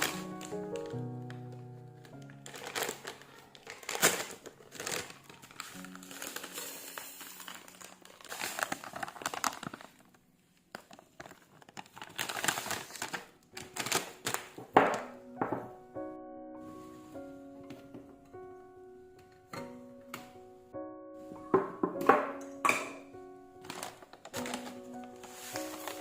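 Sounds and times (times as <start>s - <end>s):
background music: 0.0s - 8.7s, 13.0s - 26.0s
packaging crinkling: 0.0s - 15.0s, 23.6s - 26.0s.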